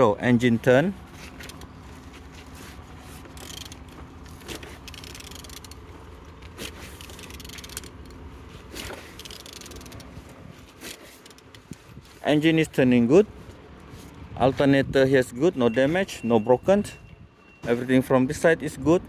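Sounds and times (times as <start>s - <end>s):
engine scraping turned by hand: 0.0s - 19.0s
sharp mechanical clicks: 3.3s - 8.2s, 8.8s - 10.2s.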